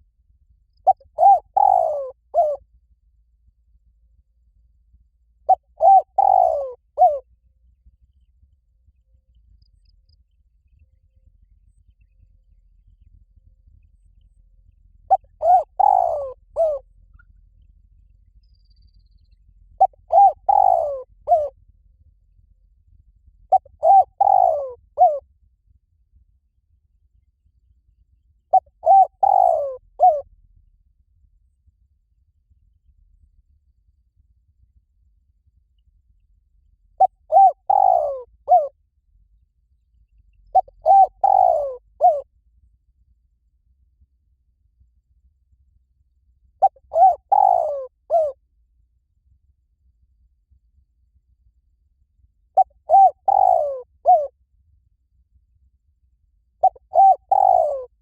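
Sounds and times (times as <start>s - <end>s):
dove cooing: 0.8s - 2.6s, 5.5s - 7.2s, 15.1s - 16.8s, 19.8s - 21.5s, 23.5s - 25.2s, 28.5s - 30.2s, 37.0s - 38.7s, 40.5s - 42.3s, 46.6s - 48.4s, 52.6s - 54.3s, 56.6s - 58.0s.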